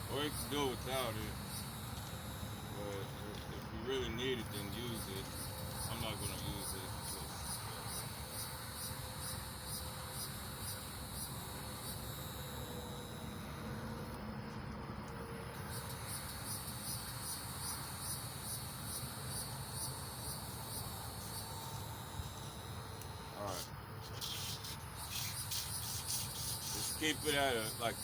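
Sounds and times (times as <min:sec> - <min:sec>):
crickets chirping: 0:00.0 - 0:28.0.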